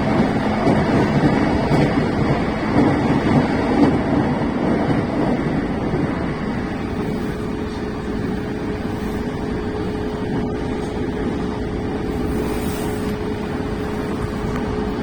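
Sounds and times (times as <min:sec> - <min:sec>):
train running rumble: 0:00.0 - 0:15.0
train whine: 0:00.0 - 0:15.0.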